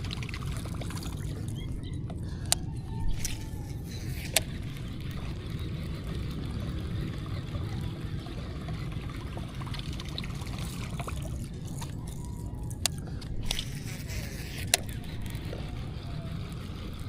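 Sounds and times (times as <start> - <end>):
water trickling and lapping: 0.0 - 2.4, 3.1 - 12.2.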